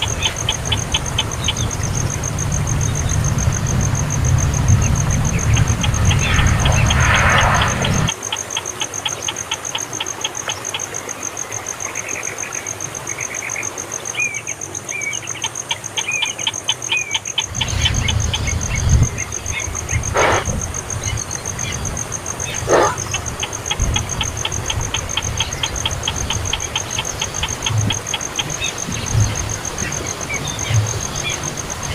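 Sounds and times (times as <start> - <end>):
low rumble: 0.4 - 8.1.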